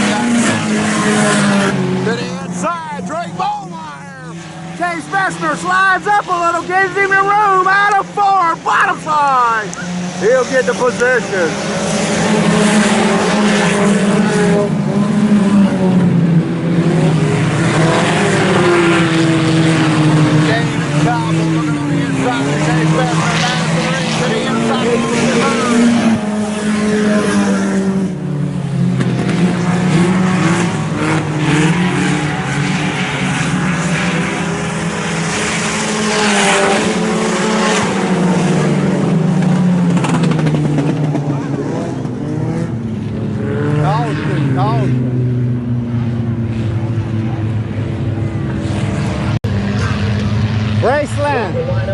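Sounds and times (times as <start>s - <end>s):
race car engines at speed: 0.0s - 51.9s.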